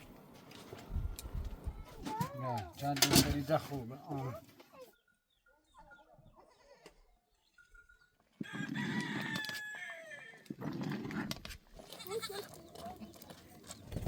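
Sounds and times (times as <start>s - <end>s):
rooster crowing: 8.4s - 10.5s.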